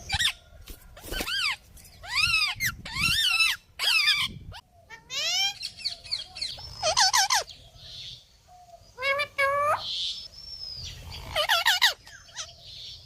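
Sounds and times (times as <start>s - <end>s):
parrot calling: 1.2s - 7.5s, 11.1s - 12.5s.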